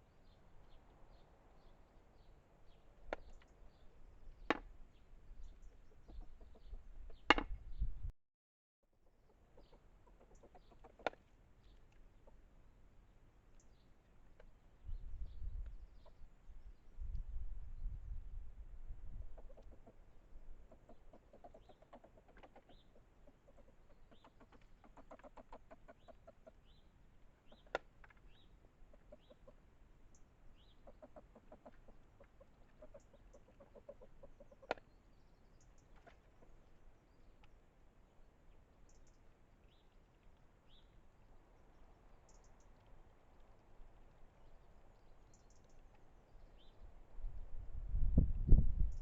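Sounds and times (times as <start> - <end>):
rapid clucking calls: 5.6 - 7.3, 9.0 - 11.3, 19.2 - 26.7, 27.4 - 29.6, 30.6 - 35.0.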